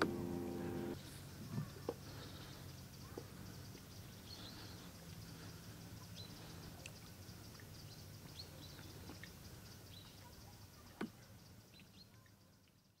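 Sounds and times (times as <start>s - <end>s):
low steady hum: 0.0s - 9.5s
small birds chirping: 0.0s - 13.0s.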